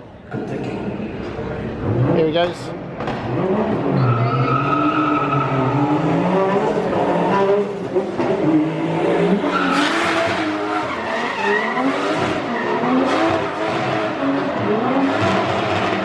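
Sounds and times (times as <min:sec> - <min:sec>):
car engine revving: 0:00.4 - 0:16.0
tyres squealing: 0:09.4 - 0:13.1.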